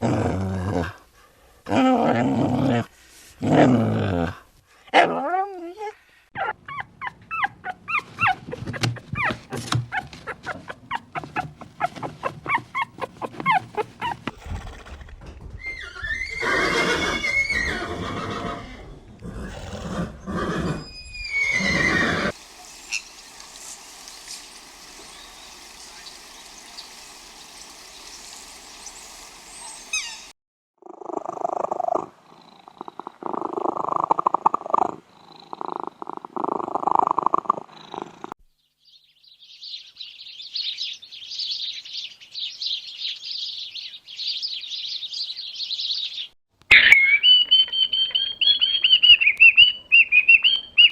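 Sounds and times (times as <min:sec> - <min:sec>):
animal calls: 0:06.4 - 0:18.7, 0:28.9 - 0:30.3, 0:46.7 - 0:50.9.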